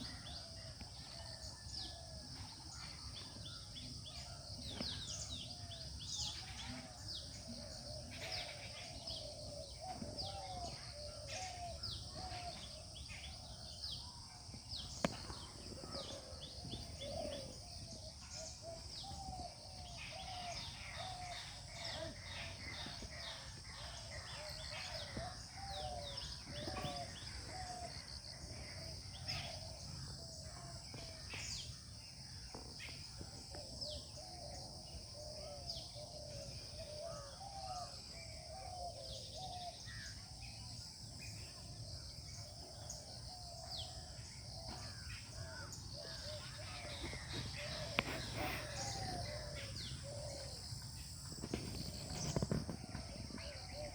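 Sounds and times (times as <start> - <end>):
garden birds calling: 0.0 - 53.9
steady high-pitched hiss: 41.2 - 53.9.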